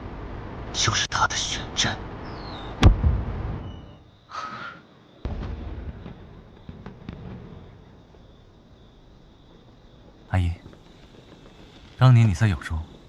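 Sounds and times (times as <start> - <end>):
fireworks bursting with a bang: 5.2 - 8.3, 10.6 - 12.0
fireworks crackling: 10.4 - 13.0.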